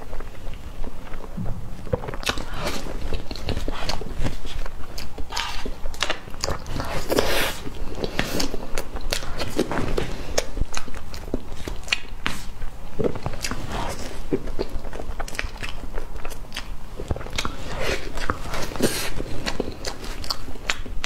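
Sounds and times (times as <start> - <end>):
person chewing cake: 0.0 - 21.0.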